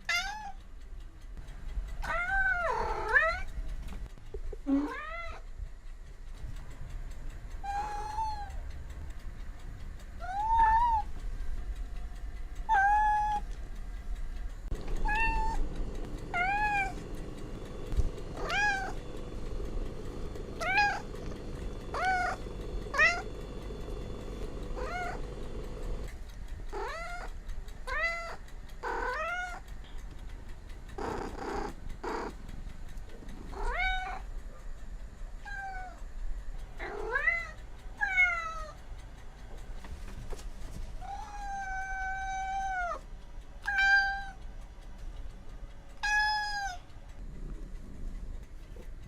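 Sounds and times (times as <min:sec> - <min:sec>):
cat meowing: 0:00.0 - 0:00.6, 0:02.0 - 0:03.5, 0:07.6 - 0:08.6, 0:10.2 - 0:11.1, 0:12.7 - 0:13.5, 0:15.0 - 0:15.6, 0:16.3 - 0:17.0, 0:18.4 - 0:19.0, 0:20.6 - 0:21.2, 0:21.9 - 0:23.3, 0:24.8 - 0:25.2, 0:27.9 - 0:29.6, 0:33.5 - 0:34.2, 0:41.0 - 0:43.0, 0:43.6 - 0:44.4, 0:46.0 - 0:46.9.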